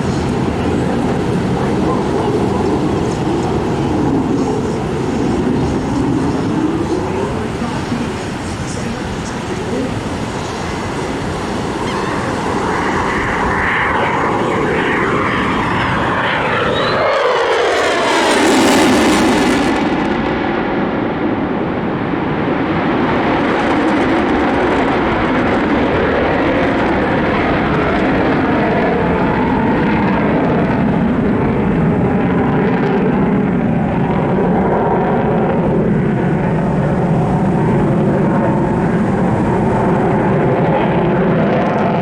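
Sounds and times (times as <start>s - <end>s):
airplane engine drone: 0.0s - 42.0s.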